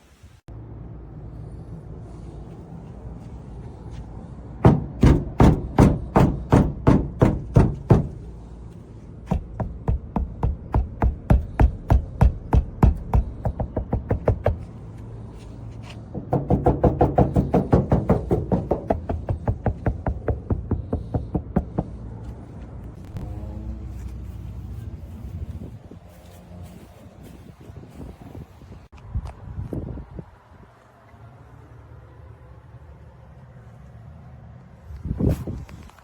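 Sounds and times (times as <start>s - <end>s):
knuckles rapping on car panels: 4.6s - 8.4s, 9.2s - 14.8s, 15.8s - 22.4s.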